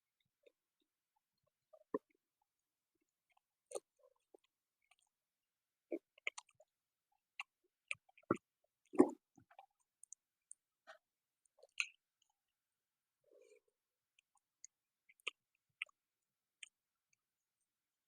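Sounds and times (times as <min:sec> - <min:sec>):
person chewing: 0:06.2 - 0:06.6, 0:14.3 - 0:16.0.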